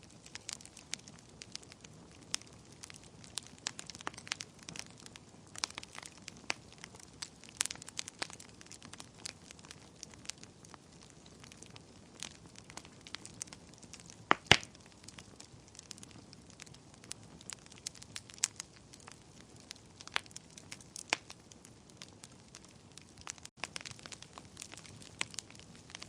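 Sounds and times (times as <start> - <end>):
wood fire crackling and popping: 0.0 - 26.0.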